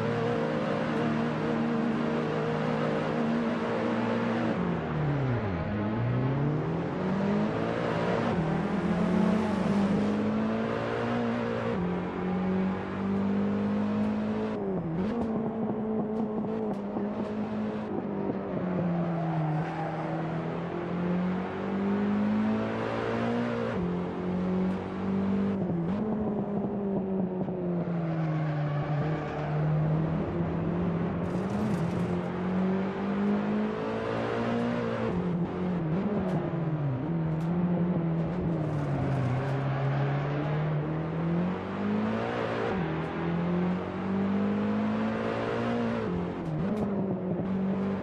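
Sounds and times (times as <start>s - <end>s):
car engine under load: 0.0s - 48.0s.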